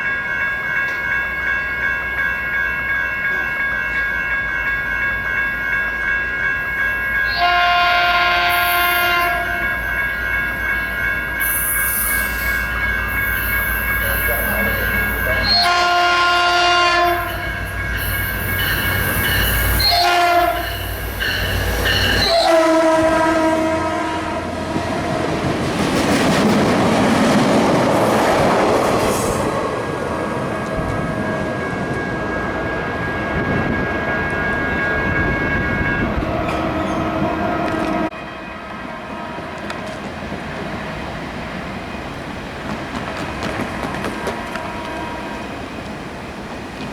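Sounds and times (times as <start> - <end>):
train wheels rumbling on rails: 0.0 - 38.2, 38.8 - 46.9
locomotive air horn: 7.3 - 9.7, 15.3 - 17.5, 19.7 - 20.8, 22.2 - 24.6, 44.4 - 45.4.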